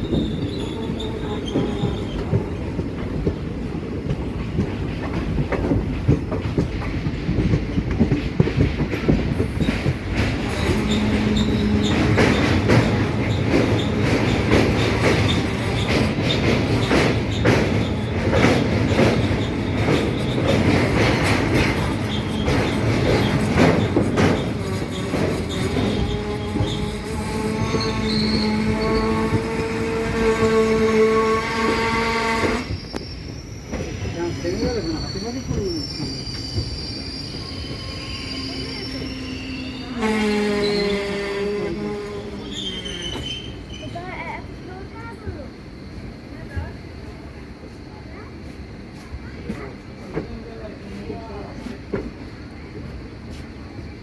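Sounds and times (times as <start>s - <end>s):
wheels clattering over rail joints: 0.0s - 30.8s
train coach rumbling: 0.0s - 54.0s.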